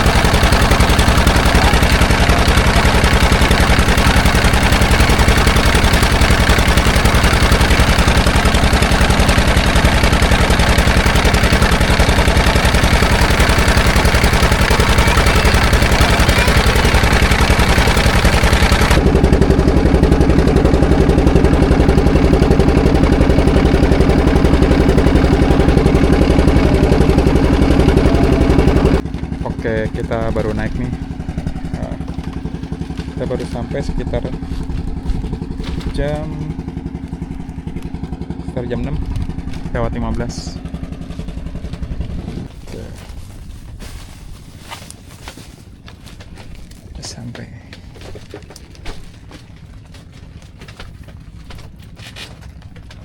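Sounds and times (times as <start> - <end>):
small engine puttering: 0.0 - 53.0.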